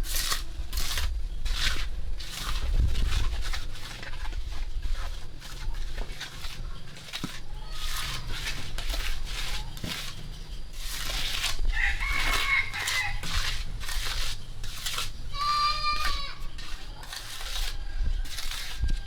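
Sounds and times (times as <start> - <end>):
rooster crowing: 11.6 - 13.6, 17.6 - 19.0.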